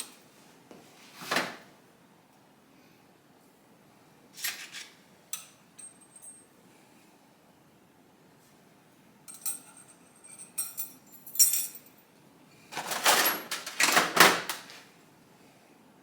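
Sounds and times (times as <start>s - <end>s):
scraping and rustling of parts: 4.4s - 5.0s, 12.7s - 14.9s
small metal parts clinking: 9.3s - 11.9s.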